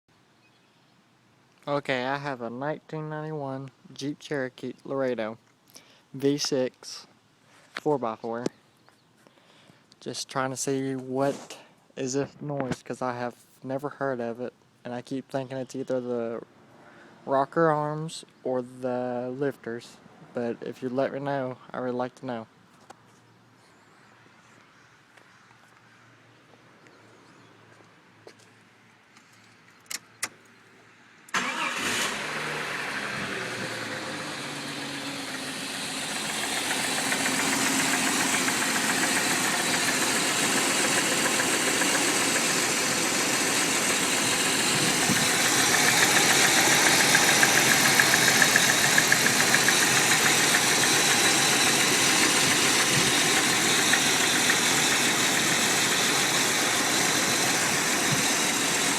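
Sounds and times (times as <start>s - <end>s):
car engine starting and idling: 31.3s - 58.9s.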